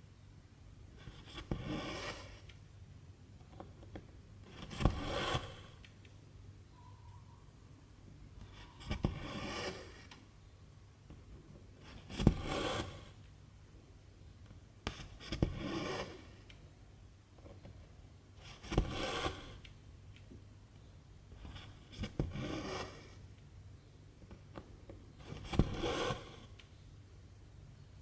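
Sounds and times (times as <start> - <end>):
thread rasping through fabric: 25.2 - 26.6.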